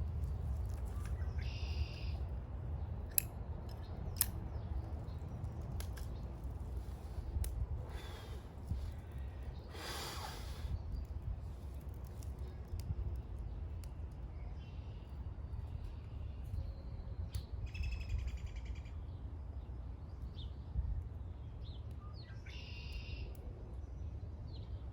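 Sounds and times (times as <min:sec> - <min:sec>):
steady low rumble: 0:00.0 - 0:21.9.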